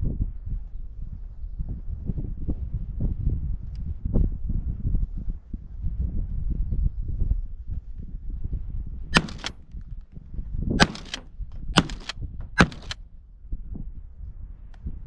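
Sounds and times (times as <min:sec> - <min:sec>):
shotgun shots with echo: 0:09.2 - 0:09.6, 0:10.8 - 0:13.0.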